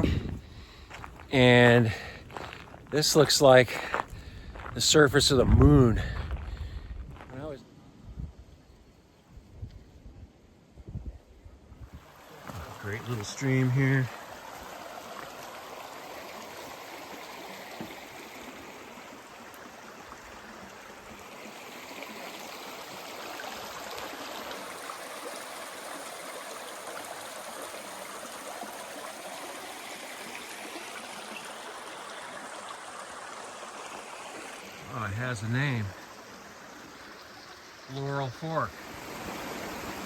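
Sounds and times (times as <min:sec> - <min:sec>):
stream rushing over rocks: 0:11.9 - 0:40.0.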